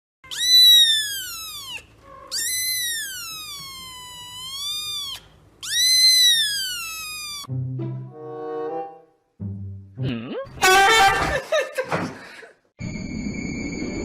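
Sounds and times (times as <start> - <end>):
cat meowing: 0.2 - 7.5.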